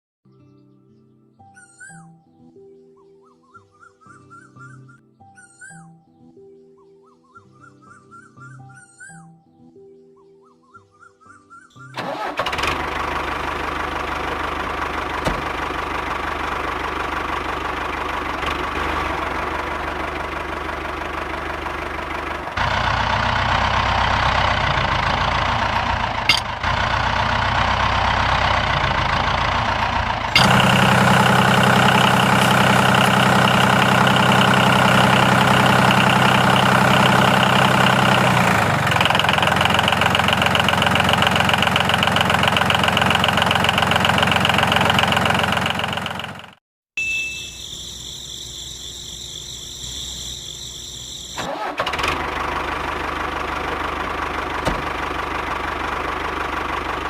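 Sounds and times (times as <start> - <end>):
engine running: 12.0 - 46.6, 47.7 - 57.0.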